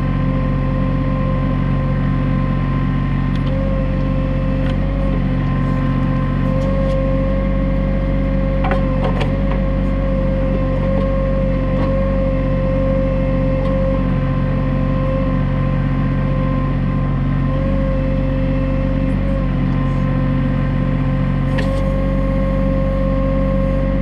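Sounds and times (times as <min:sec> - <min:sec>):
tractor diesel engine running: 0:00.0 - 0:24.0
steady whine: 0:15.0 - 0:24.0.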